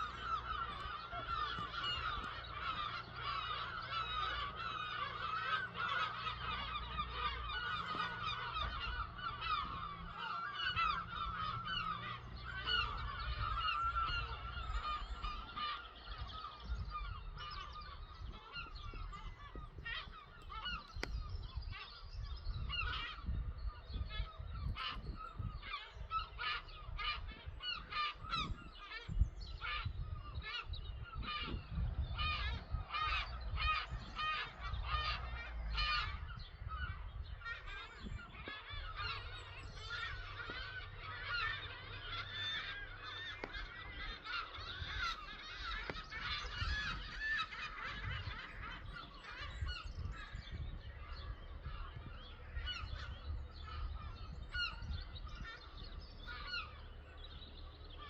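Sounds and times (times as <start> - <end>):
flock of birds calling: 0.0 - 58.0.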